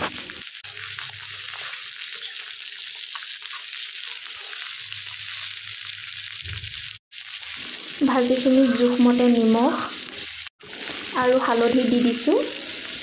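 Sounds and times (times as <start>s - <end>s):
spatula stirring and scraping: 0.0s - 5.4s
vegetables sizzling in hot oil: 0.0s - 13.0s.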